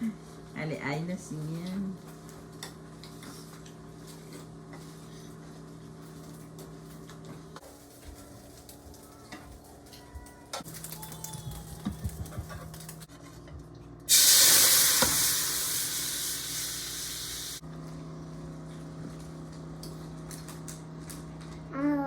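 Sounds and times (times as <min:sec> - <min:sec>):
food sizzling in hot pan: 0:14.1 - 0:17.6.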